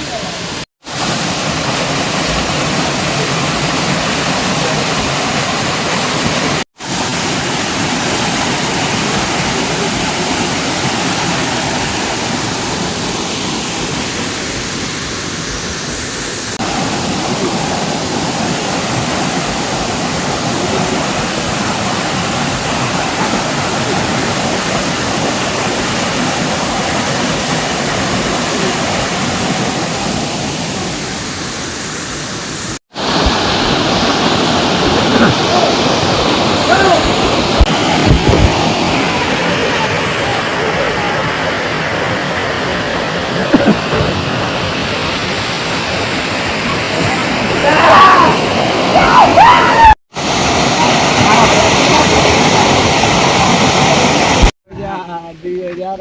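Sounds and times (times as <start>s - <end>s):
waterfall rushing: 0.0s - 55.1s.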